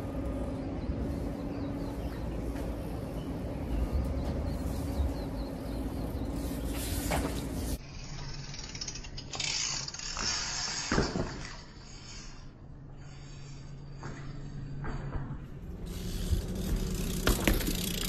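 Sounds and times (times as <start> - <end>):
steady hum: 0.0 - 8.7
bike tyres rolling: 0.0 - 18.0.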